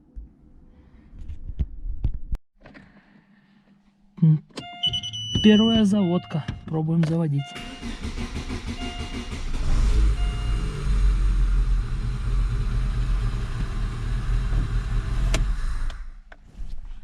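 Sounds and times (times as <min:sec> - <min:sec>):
car engine running: 0:07.6 - 0:15.9
starter motor cranking: 0:07.6 - 0:16.1.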